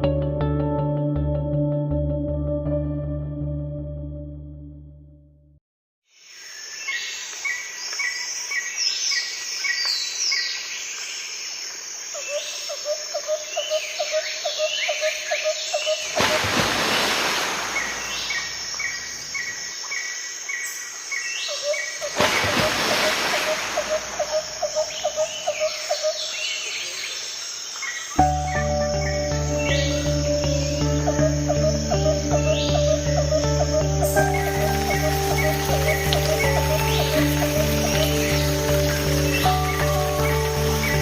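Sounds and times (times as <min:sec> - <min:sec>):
birds chirping and calling: 0:17.7 - 0:41.0
repeated high bird notes: 0:28.2 - 0:41.0.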